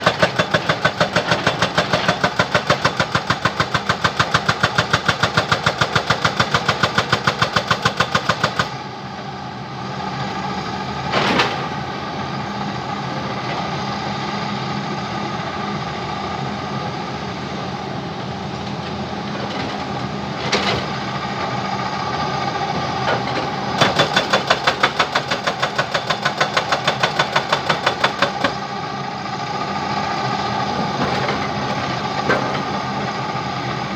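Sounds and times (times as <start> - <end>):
jackhammer pounding: 0.0 - 8.8, 23.2 - 28.8.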